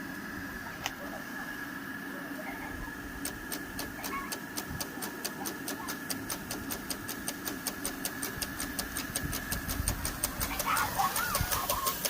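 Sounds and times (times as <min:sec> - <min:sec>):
sharp regular clicks: 0:03.2 - 0:12.0
steam locomotive hissing: 0:09.4 - 0:12.0.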